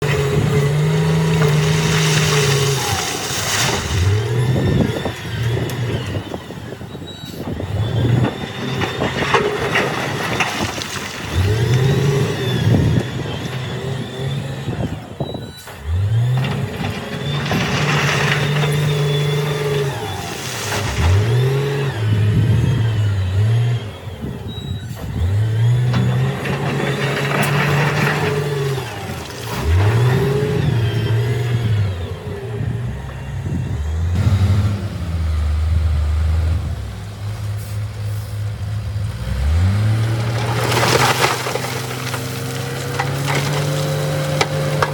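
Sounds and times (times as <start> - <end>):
heavy machinery diesel engine revving: 0.0 - 10.5, 11.2 - 44.9
rushing crashing noise: 39.8 - 44.9.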